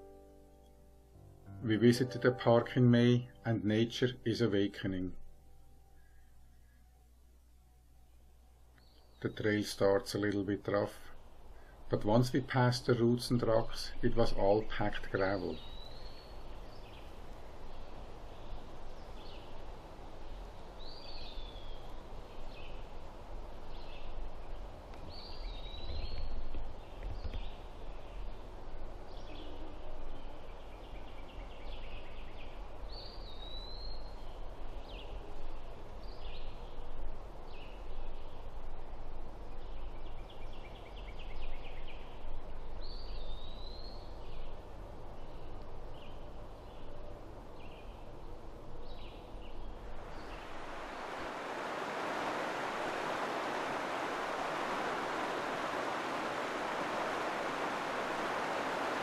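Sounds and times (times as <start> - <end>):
songbirds whistling: 15.6 - 17.1, 20.8 - 22.9, 25.1 - 28.2, 29.1 - 35.2, 42.8 - 44.5.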